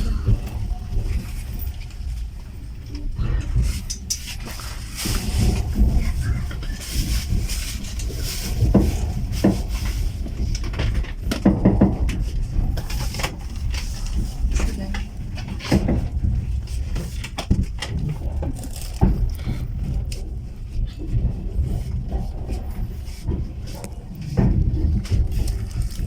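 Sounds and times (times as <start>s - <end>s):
indistinct voices: 0.0s - 1.4s
railway carriage rumble: 0.0s - 26.0s
knocks: 10.8s - 13.4s.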